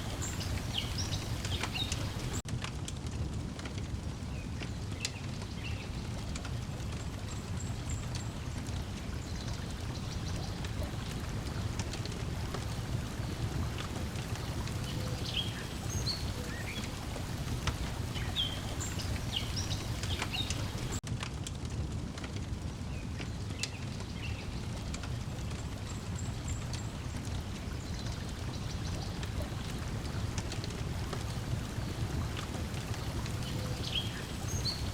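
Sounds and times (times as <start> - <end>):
birds chirping: 0.0 - 2.4, 12.6 - 21.0, 31.0 - 34.9
water lapping: 0.0 - 2.4, 7.2 - 21.0, 25.1 - 34.9
wood fire crackling: 0.0 - 34.9.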